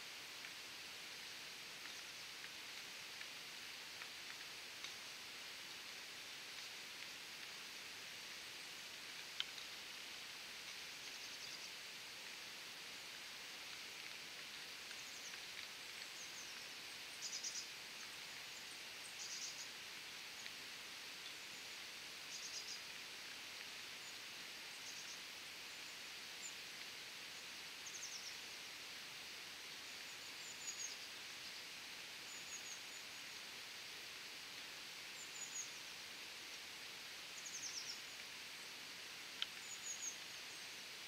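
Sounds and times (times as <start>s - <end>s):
faint outdoor air hiss: 0.0s - 41.0s
small bird chirping: 15.0s - 17.8s, 18.5s - 19.8s, 22.3s - 22.9s, 27.8s - 28.4s, 30.0s - 31.2s, 37.3s - 38.7s, 39.4s - 40.8s.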